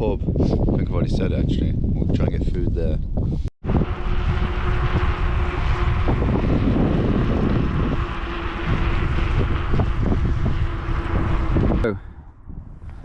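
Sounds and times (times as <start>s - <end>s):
wind buffeting microphone: 0.0s - 13.0s
electric motor whine: 3.6s - 11.9s.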